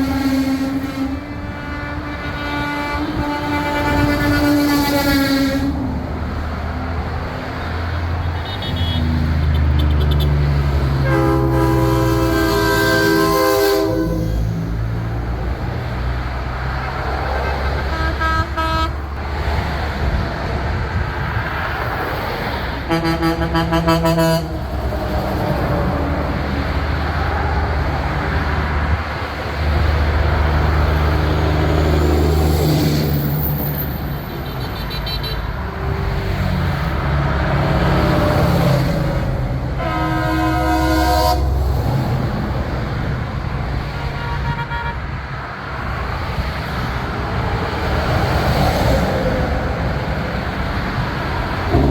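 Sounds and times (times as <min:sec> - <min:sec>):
truck air horns: 0:00.0 - 0:06.3, 0:07.6 - 0:15.1, 0:16.8 - 0:19.4, 0:22.7 - 0:29.2, 0:30.5 - 0:45.4, 0:51.2 - 0:51.9
diesel trucks rumbling past: 0:00.0 - 0:51.9.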